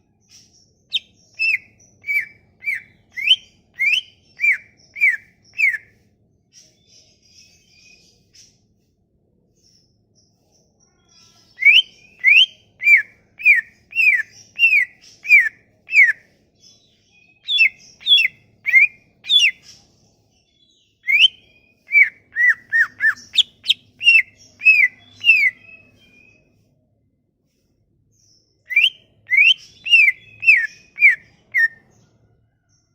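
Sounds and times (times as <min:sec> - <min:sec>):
songbird whistling: 0:00.9 - 0:05.9, 0:11.2 - 0:19.8, 0:21.0 - 0:26.6, 0:28.7 - 0:32.0.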